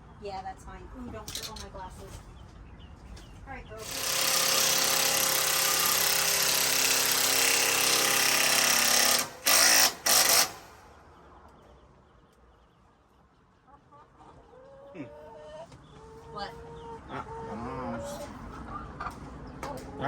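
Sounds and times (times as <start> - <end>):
power drill running: 3.8 - 10.8.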